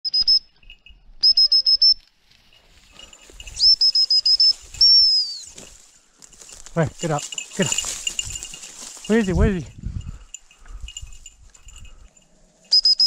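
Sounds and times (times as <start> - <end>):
songbird singing: 2.8 - 9.3, 10.2 - 13.0.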